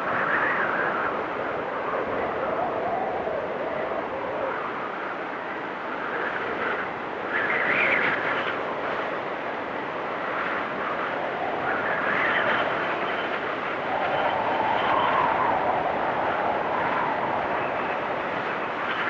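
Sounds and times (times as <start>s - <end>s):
gusting blizzard wind: 0.0s - 19.0s.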